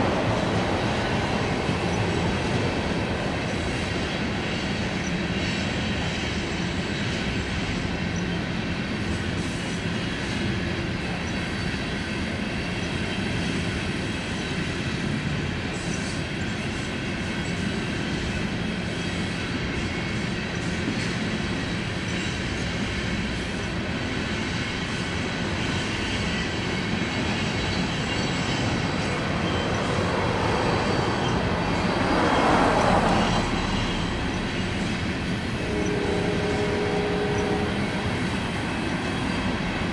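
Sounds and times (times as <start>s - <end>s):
train wheels rumbling on rail: 0.0s - 39.9s
high wheel squeal: 25.7s - 39.7s.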